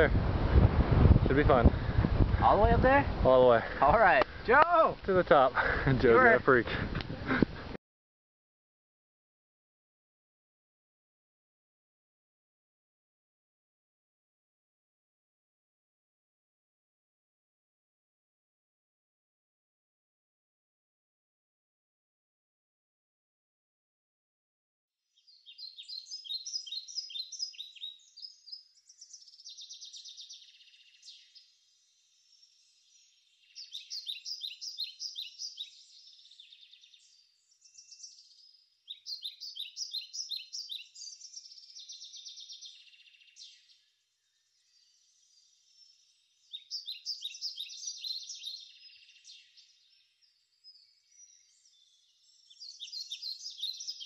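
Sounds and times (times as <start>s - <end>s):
bird chirping and trilling: 25.2s - 54.0s.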